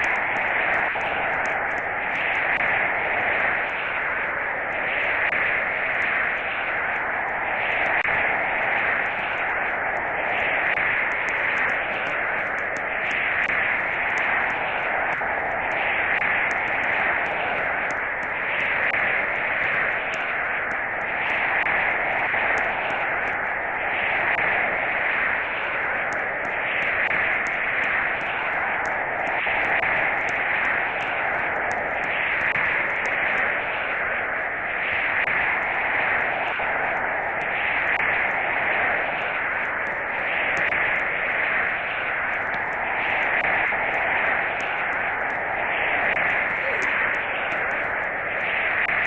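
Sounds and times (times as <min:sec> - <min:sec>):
faint crackles: 0:00.0 - 0:49.0
static-like hiss: 0:00.0 - 0:49.0.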